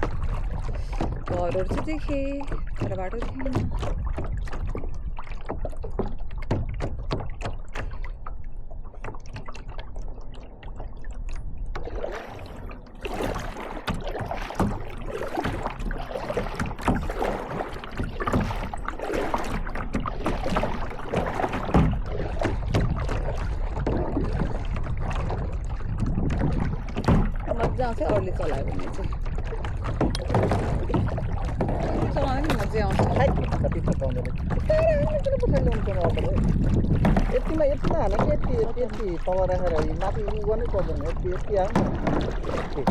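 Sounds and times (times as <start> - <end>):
paddle splashing: 0.0 - 42.9
water moving around boat: 0.0 - 42.9.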